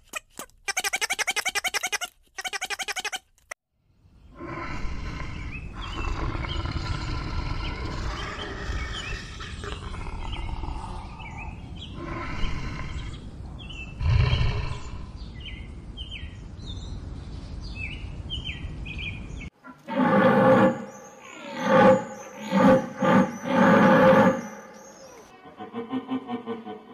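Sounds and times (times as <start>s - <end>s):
large animal growling and roaring: 4.3s - 15.3s, 19.8s - 25.8s
birds chirping: 4.7s - 25.4s.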